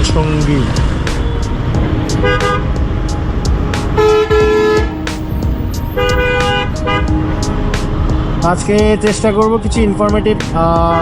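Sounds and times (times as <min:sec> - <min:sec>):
low traffic rumble: 0:00.0 - 0:11.0
vehicle horns honking: 0:01.2 - 0:02.8, 0:04.0 - 0:07.1.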